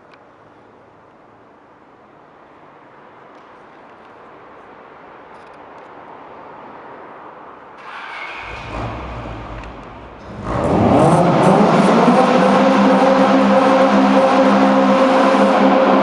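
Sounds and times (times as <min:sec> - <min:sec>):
car engine and exhaust: 0:07.8 - 0:16.0.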